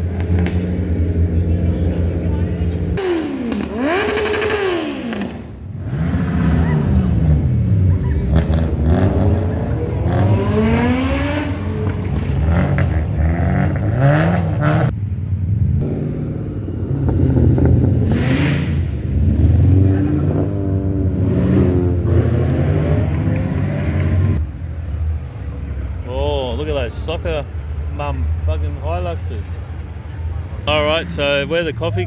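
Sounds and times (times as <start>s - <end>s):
car engines revving: 0.0s - 32.0s
traffic rumble: 0.0s - 32.0s.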